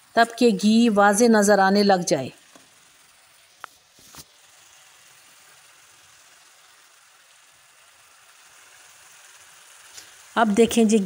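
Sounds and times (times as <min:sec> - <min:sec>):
faint sizzle in a pan: 0:00.0 - 0:11.0.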